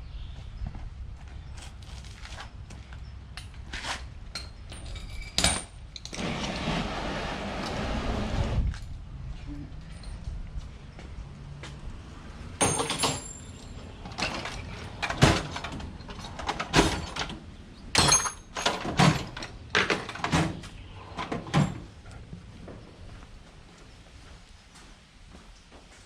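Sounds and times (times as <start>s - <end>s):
tools and parts clanking: 4.3s - 6.5s, 12.6s - 21.9s.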